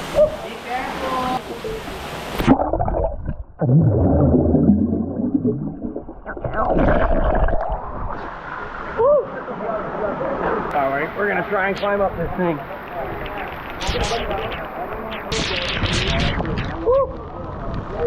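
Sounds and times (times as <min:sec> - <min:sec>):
muffled underwater rumble and gurgling: 0:13.0 - 0:18.0.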